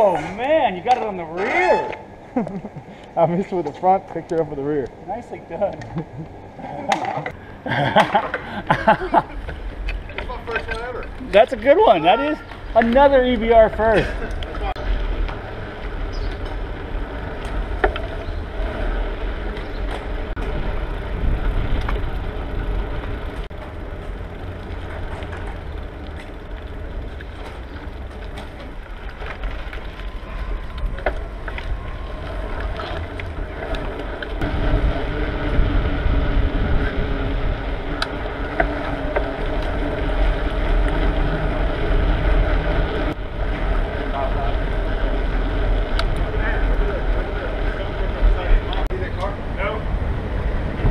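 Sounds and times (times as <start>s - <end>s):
bicycle rattling and clicking: 0.0s - 50.9s
steady hum: 13.6s - 50.9s
wind on microphone: 18.2s - 23.5s, 30.0s - 43.8s, 48.0s - 50.9s.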